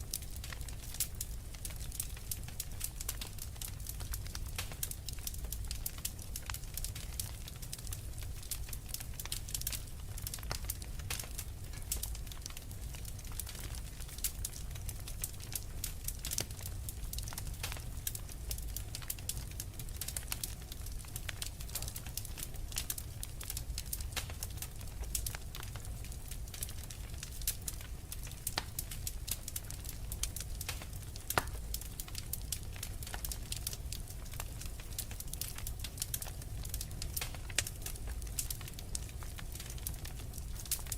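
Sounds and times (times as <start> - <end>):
low rumble of flames: 0.0 - 40.9
wood fire crackling: 0.0 - 40.9.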